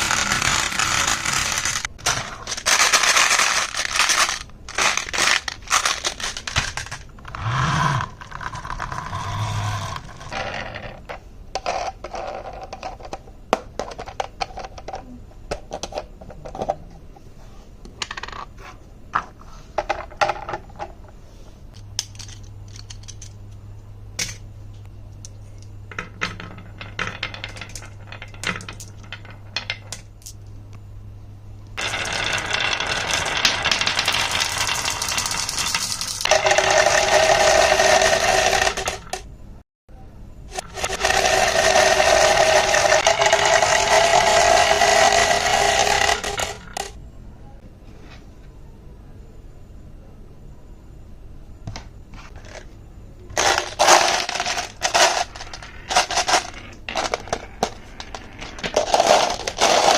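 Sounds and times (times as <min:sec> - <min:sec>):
marbles clattering down wooden run: 0:00.0 - 0:11.0, 0:26.0 - 0:30.0, 0:31.8 - 0:39.2, 0:40.5 - 0:47.0, 0:53.4 - 0:59.9
rattling whir with hum: 0:00.0 - 0:11.1.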